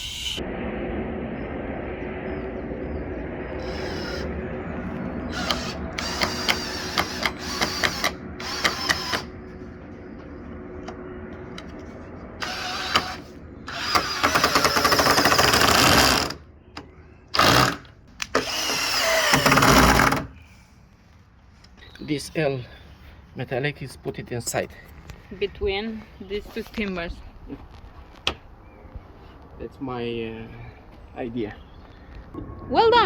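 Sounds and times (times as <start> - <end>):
steady low hum: 0.0 - 33.0
cordless drill driving into wood: 5.4 - 9.3, 12.4 - 16.4, 17.4 - 20.3.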